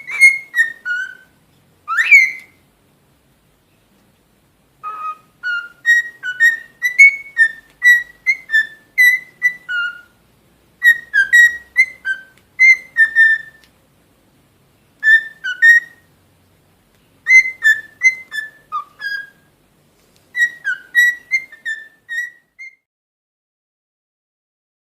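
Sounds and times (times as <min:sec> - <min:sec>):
cockatiel whistling: 0:00.0 - 0:02.6, 0:04.8 - 0:10.2, 0:10.8 - 0:13.7, 0:15.0 - 0:16.1, 0:17.2 - 0:19.5, 0:20.3 - 0:22.9.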